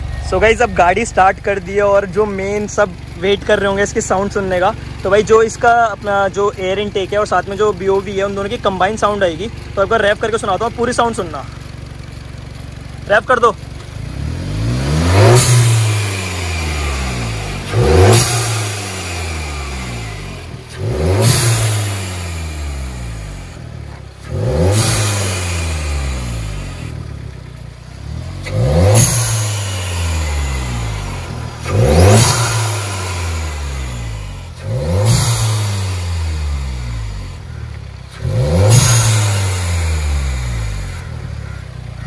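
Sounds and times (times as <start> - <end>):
petrol engine revving: 0.0 - 42.0.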